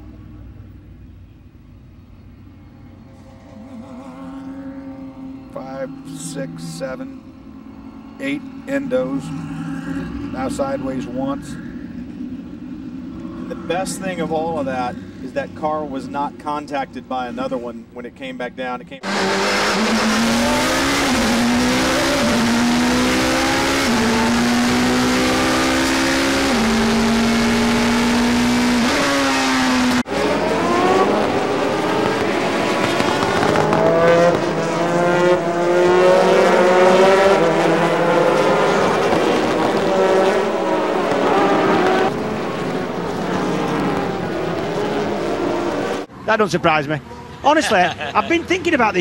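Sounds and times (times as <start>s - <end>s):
several race engines accelerating: 2.8s - 17.5s, 19.0s - 46.1s
racing engine accelerating: 19.0s - 46.1s.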